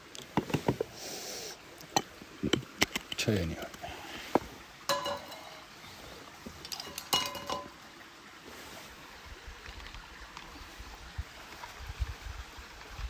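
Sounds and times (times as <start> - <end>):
utensils clinking on dishes: 4.9 - 5.7, 6.5 - 7.8.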